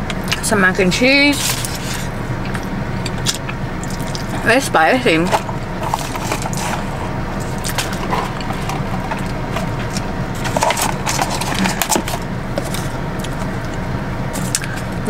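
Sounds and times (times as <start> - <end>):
low car interior hum: 0.0 - 15.0.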